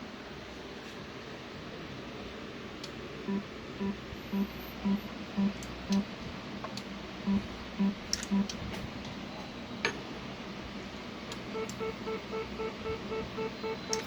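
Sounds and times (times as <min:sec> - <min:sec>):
electronic beeping: 0:03.3 - 0:06.1, 0:07.3 - 0:08.5, 0:11.5 - 0:14.0
sharp clicks: 0:11.3 - 0:11.8, 0:13.8 - 0:14.0.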